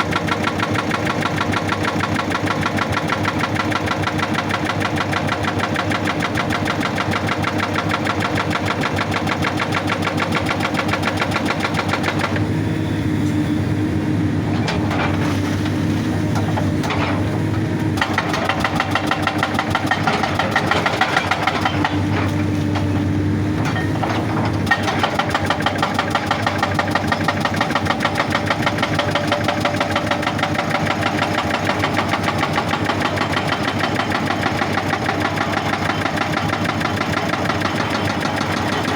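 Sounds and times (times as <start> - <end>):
hydraulic rock breaker hammering: 0.0 - 12.5, 14.5 - 38.9
diesel engine: 0.0 - 38.9.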